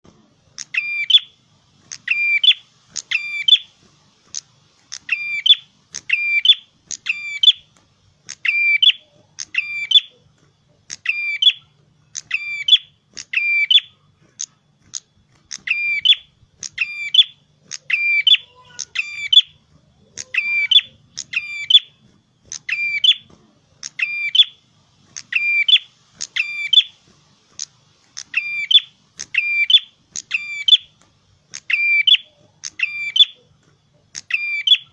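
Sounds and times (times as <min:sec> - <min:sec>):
bird chirping song: 0:00.6 - 0:27.0, 0:27.6 - 0:34.9.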